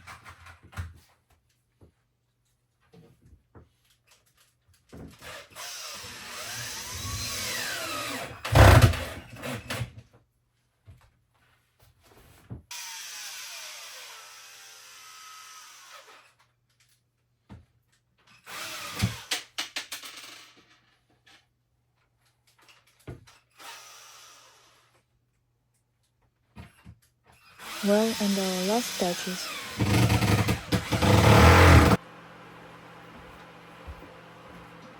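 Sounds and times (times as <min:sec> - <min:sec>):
power drill whining: 0:28.8 - 0:32.0.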